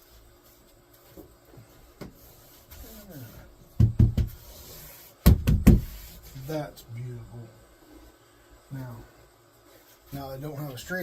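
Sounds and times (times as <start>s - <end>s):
heavy knocks on wood: 3.8s - 4.4s, 5.2s - 6.0s.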